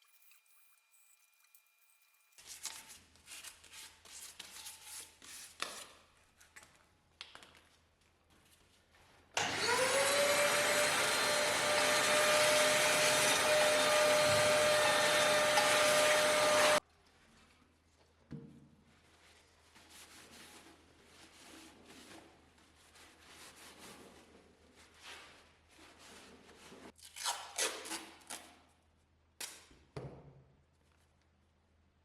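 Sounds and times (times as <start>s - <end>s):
small electric motor whine: 9.4s - 16.8s.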